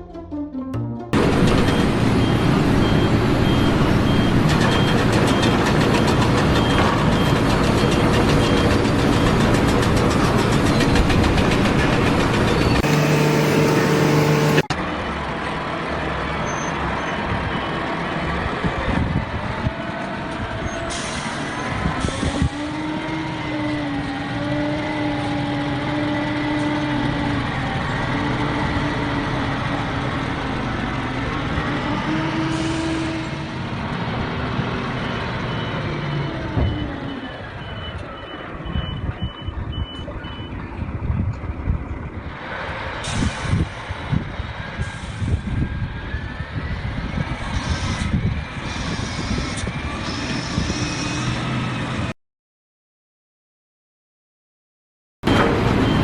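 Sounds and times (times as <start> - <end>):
heavy machine engine running: 1.2 - 14.8, 55.3 - 56.0
wavering pitched whine: 12.8 - 14.7.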